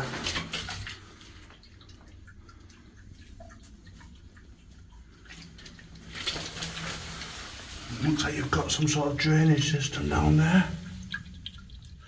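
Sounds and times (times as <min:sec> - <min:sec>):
water dripping: 0:00.0 - 0:12.0
faint low rumble: 0:06.7 - 0:12.0.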